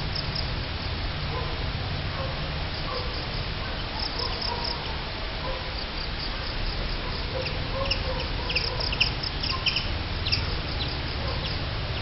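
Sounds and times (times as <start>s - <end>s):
birds chirping: 7.1s - 12.0s.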